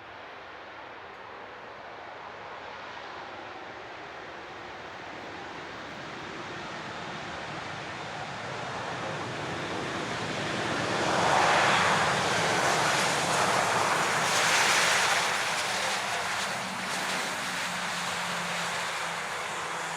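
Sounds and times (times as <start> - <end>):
jet plane passing low: 1.1 - 19.9.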